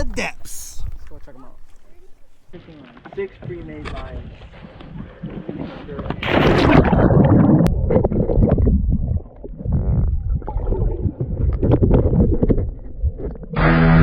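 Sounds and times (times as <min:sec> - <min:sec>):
lake water sloshing: 0:00.7 - 0:07.0.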